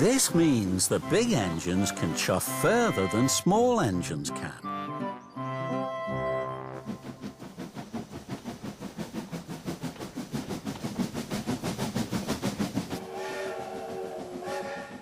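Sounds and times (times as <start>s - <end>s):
steam locomotive chuffing: 0.0s - 4.6s, 6.1s - 15.0s
steam hiss: 6.8s - 15.0s.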